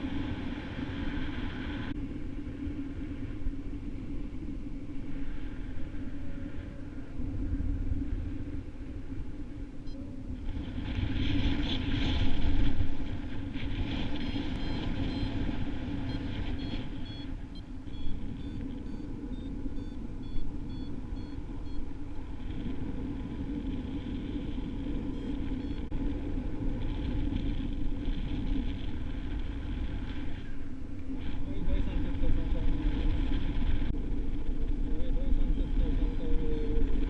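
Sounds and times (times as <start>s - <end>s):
wind buffeting microphone: 0.0s - 37.0s
high electronic beeps: 14.6s - 21.9s, 25.1s - 25.9s.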